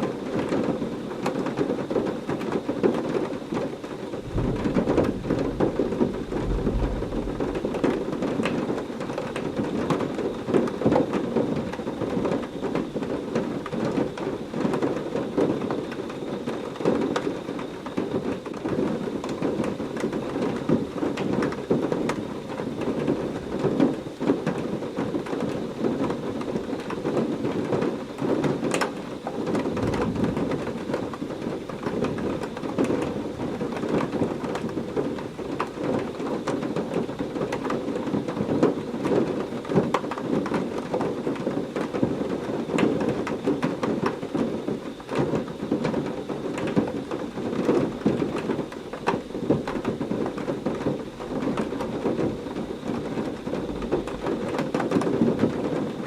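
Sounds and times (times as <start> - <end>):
heavy rain falling: 3.7 - 15.1, 19.6 - 56.0
rolling thunder rumble: 4.0 - 10.2, 29.5 - 34.9.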